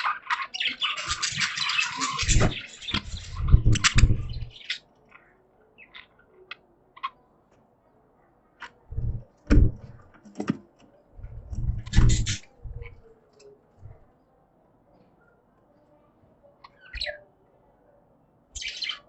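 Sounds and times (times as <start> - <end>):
budgies chirping: 0.0 - 7.2, 11.2 - 13.1, 18.6 - 19.0
low thumps: 2.3 - 4.5, 8.9 - 10.0, 11.2 - 13.0.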